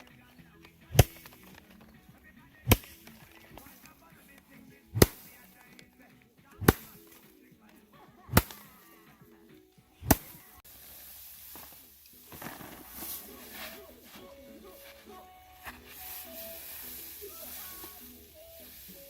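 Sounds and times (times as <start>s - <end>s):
faint background music: 0.0s - 19.0s
soft rustling: 0.0s - 19.0s
sharp cracking strikes: 0.9s - 1.8s, 2.6s - 4.0s, 4.8s - 5.9s, 6.5s - 7.4s, 8.3s - 9.0s, 10.0s - 14.2s.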